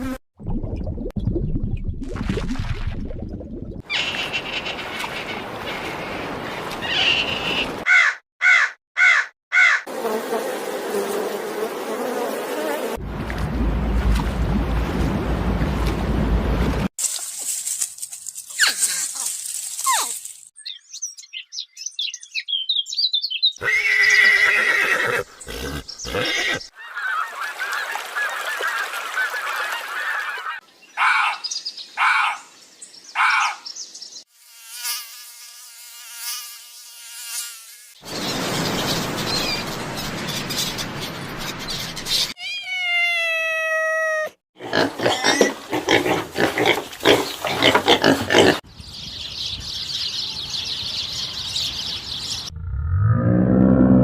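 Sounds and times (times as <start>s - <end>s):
bird chirps: 19.8s - 24.2s, 38.0s - 42.4s, 48.7s - 52.5s.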